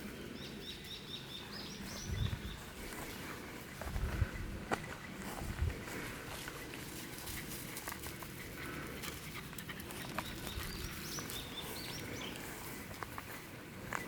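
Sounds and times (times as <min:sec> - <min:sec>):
songbird singing chirping notes: 0:00.0 - 0:03.0, 0:10.0 - 0:13.1
footsteps on damp trail: 0:02.0 - 0:14.0.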